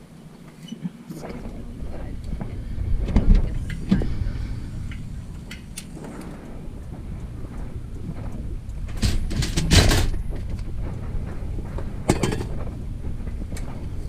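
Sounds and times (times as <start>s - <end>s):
steady low rumble: 0.0s - 14.0s
chair clattering and knocking: 8.9s - 10.6s, 12.0s - 12.8s.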